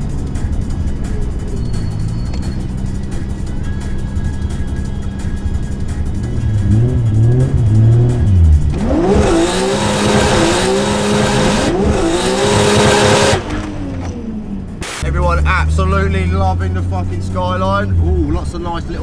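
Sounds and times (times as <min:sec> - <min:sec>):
car engine revving: 0:06.3 - 0:17.3.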